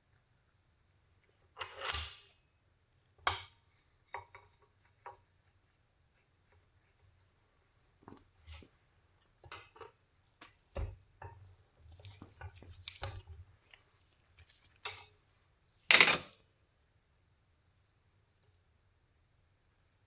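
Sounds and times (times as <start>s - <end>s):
metal parts clinking: 1.6s - 2.4s.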